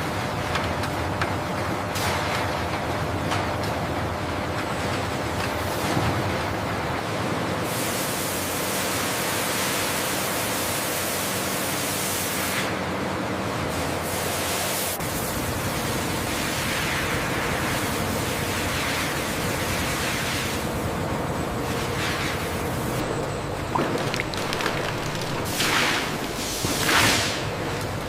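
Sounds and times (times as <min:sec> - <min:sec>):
rushing factory machinery: 0:12.0 - 0:28.0.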